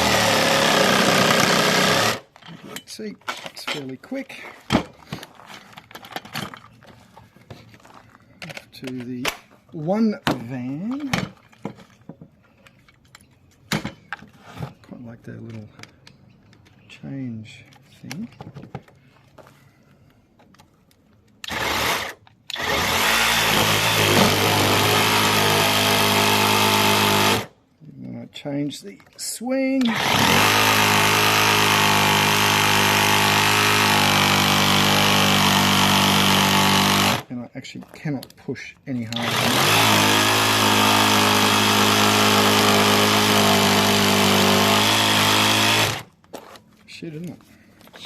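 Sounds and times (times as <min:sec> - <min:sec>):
electric jigsaw motor: 0:00.0 - 0:02.3, 0:21.4 - 0:27.5, 0:29.9 - 0:37.3, 0:39.1 - 0:46.1.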